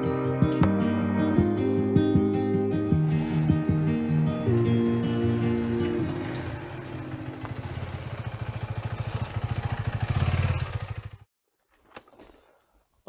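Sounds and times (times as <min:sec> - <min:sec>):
single-cylinder engine running: 0:04.6 - 0:11.3.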